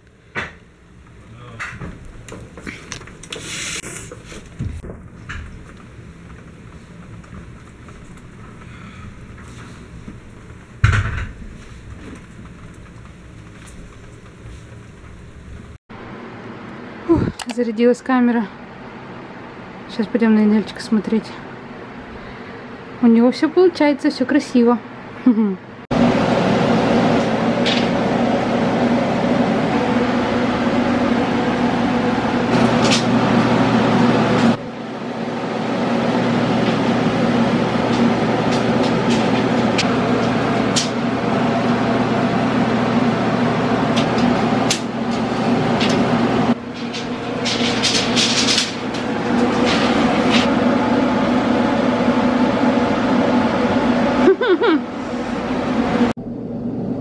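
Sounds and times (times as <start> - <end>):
sharp knocks and clatters: 10.5 - 14.4, 45.8 - 50.5
steady motor drone: 25.9 - 57.0.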